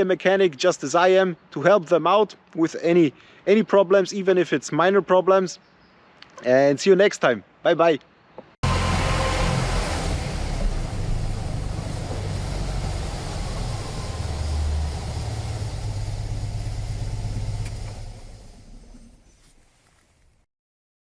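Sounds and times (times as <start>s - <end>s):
car engine rumbling: 8.6s - 19.3s.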